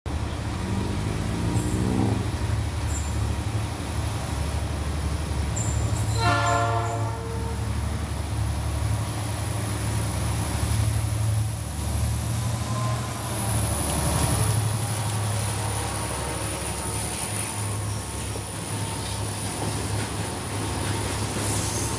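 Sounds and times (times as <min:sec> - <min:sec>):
train engine and wheels rumbling: 0:00.1 - 0:21.9
train horn blast: 0:06.1 - 0:07.8, 0:15.4 - 0:17.6.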